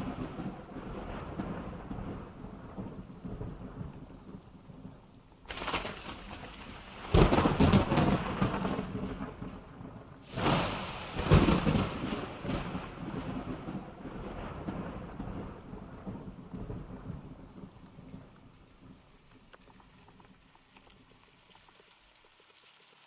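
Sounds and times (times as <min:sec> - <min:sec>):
rain falling: 0:00.0 - 0:23.0
loud rumbling bursts: 0:10.3 - 0:15.7.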